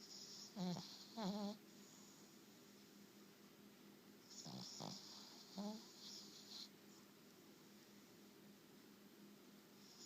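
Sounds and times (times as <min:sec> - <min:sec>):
dog snoring: 0:00.0 - 0:02.1, 0:04.3 - 0:06.7.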